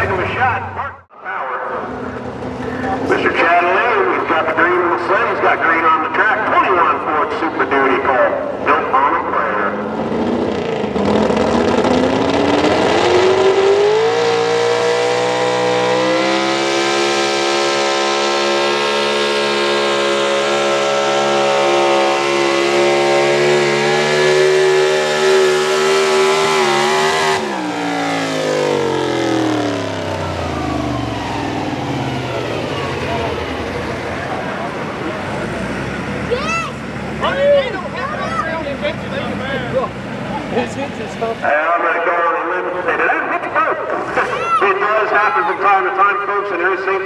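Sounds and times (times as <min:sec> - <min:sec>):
truck engine revving: 0:00.0 - 0:47.0
engine winding down: 0:08.5 - 0:41.4.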